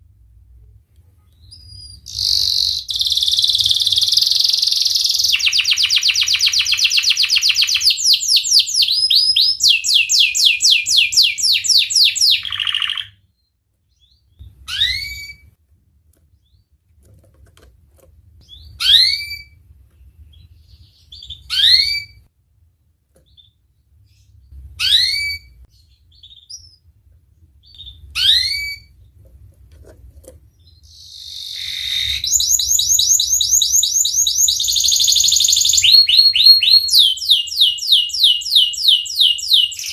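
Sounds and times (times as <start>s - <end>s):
canary singing rolling trills: 1.3s - 15.6s, 18.4s - 22.3s, 23.2s - 29.3s, 30.3s - 39.9s
canary rising chirps: 1.4s - 13.2s, 13.9s - 15.5s, 20.3s - 22.3s, 23.4s - 26.8s, 27.6s - 29.0s, 30.6s - 39.9s.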